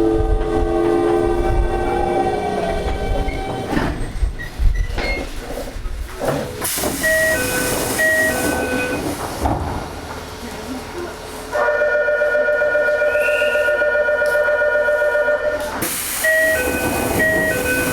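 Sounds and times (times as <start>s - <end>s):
train motor whine: 0.0s - 5.0s, 12.3s - 17.9s
air hiss: 15.8s - 17.9s.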